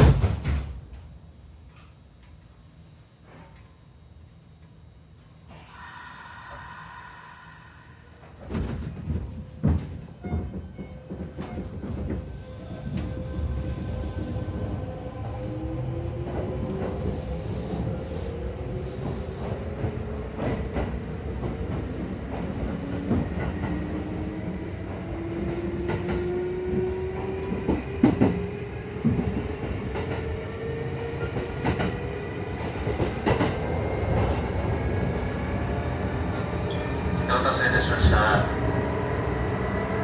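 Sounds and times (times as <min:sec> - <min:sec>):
train motor drone with rising whine: 0:01.8 - 0:09.5.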